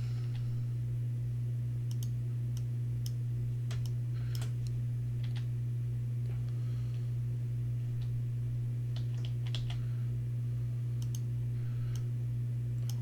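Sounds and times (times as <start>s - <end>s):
steady low hum: 0.0s - 13.0s
keyboard and mouse clicks: 9.0s - 9.8s.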